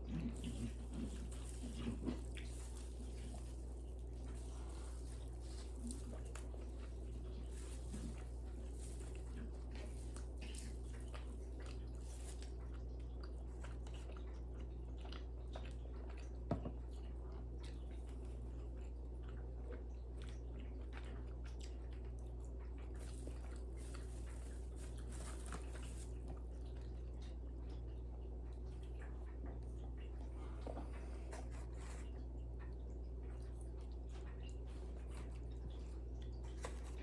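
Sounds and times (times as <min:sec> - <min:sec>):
chewing and biting: 0:00.0 - 0:37.0.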